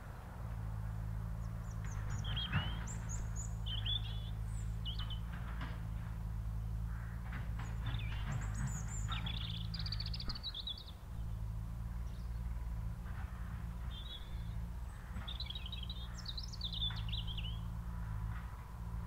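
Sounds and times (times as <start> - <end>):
songbird warbling: 1.6 - 5.3, 6.9 - 11.0.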